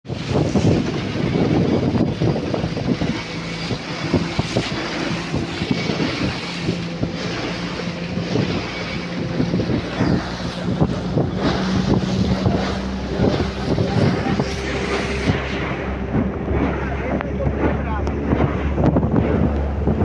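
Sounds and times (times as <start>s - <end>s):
motorboat engine humming: 0.0s - 20.0s
rushing water: 0.0s - 20.0s
wind buffeting microphone: 0.0s - 20.0s.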